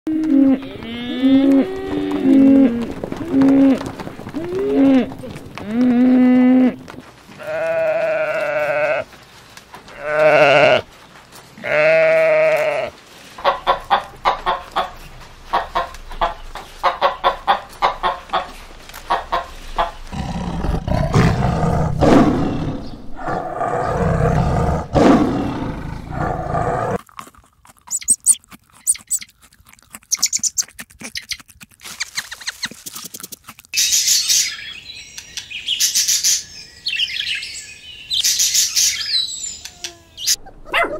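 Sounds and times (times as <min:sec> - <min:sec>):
wavering livestock calls: 0:00.1 - 0:09.2
tiger growling: 0:20.0 - 0:29.2
bird chirps and squawks: 0:27.9 - 0:29.3, 0:30.1 - 0:31.4.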